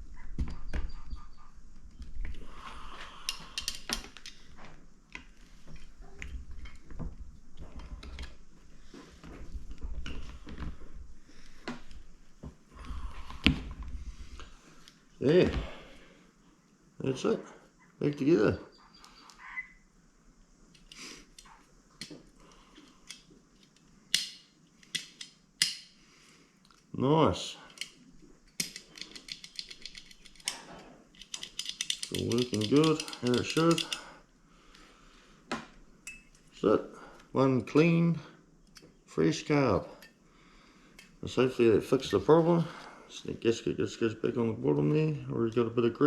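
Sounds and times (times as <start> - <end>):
metallic clicks of hand tools: 3.2 - 4.4, 23.0 - 25.9, 27.7 - 34.1.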